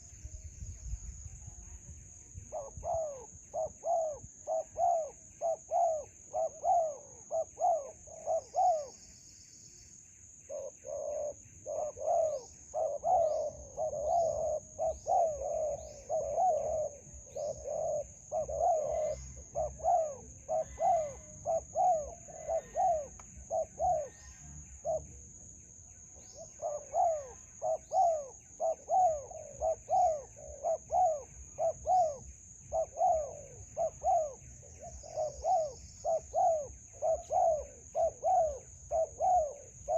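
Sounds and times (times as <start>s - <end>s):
small birds chirping: 0.0s - 39.9s
doves cooing: 2.5s - 9.1s, 10.5s - 39.9s.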